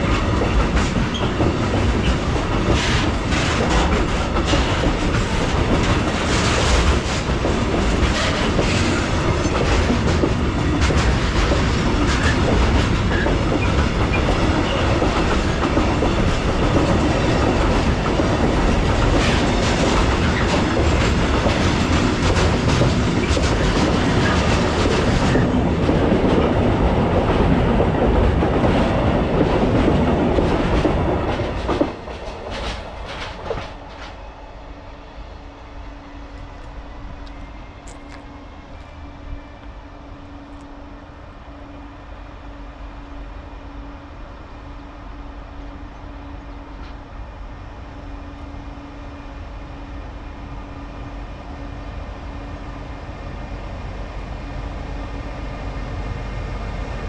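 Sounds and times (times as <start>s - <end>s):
wheels clacking over rail joints: 0.0s - 34.2s
freight train passing: 0.0s - 57.0s.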